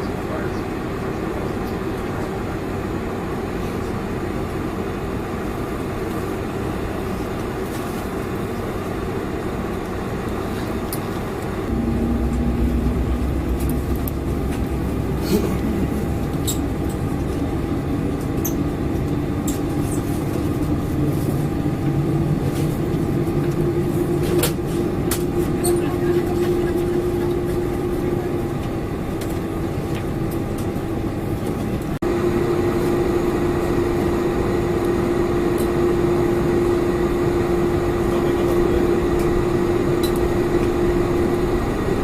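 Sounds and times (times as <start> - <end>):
airliner cabin engine rumble: 0.0 - 42.0
engine tone rising in pitch: 11.7 - 18.1.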